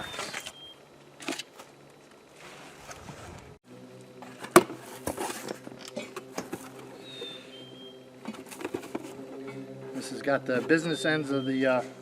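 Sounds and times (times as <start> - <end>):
cardboard box rustling and scraping: 4.4 - 5.7, 6.3 - 7.1, 8.3 - 9.2.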